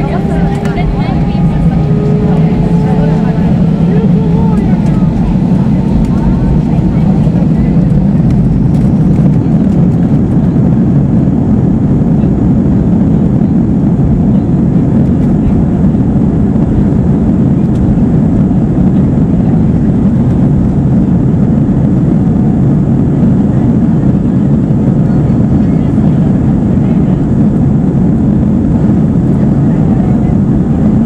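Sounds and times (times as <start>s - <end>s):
airplane cabin drone: 0.0s - 31.0s.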